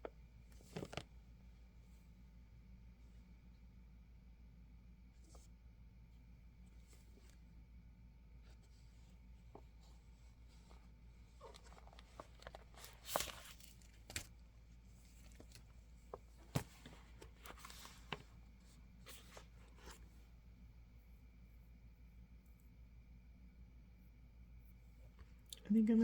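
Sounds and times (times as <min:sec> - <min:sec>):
room hum: 0:00.0 - 0:26.0
plastic cover rustling: 0:11.3 - 0:14.4.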